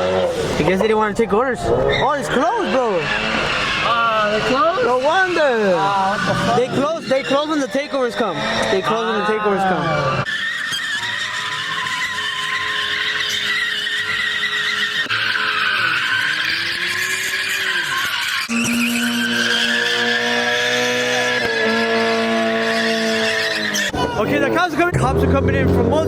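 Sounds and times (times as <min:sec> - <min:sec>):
engine revving: 0:00.0 - 0:10.3, 0:11.0 - 0:26.0
car tires squealing: 0:00.0 - 0:26.0.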